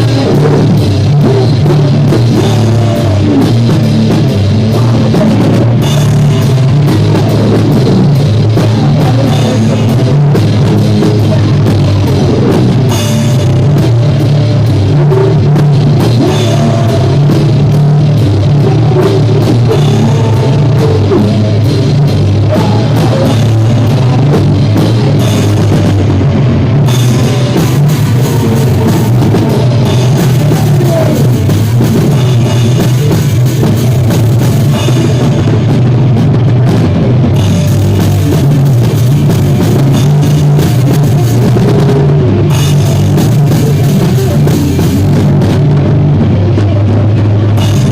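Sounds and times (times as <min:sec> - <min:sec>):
distorted guitar: 0:00.0 - 0:47.9
drum kit: 0:00.0 - 0:47.9
live rock band playing: 0:00.0 - 0:47.9.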